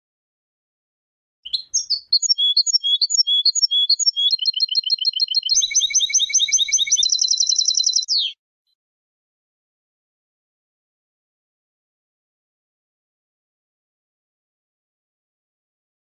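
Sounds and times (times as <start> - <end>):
goldfinch singing: 1.5 - 8.4.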